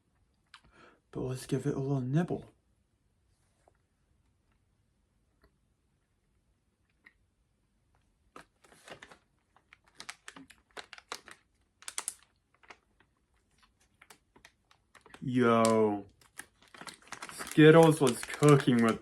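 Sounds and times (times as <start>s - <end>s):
chewing gummy candy: 9.8s - 19.0s.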